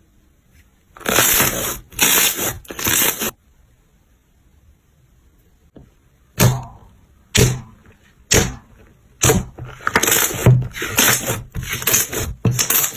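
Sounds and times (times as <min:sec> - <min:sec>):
crunchy slime crackling: 0:01.0 - 0:03.4.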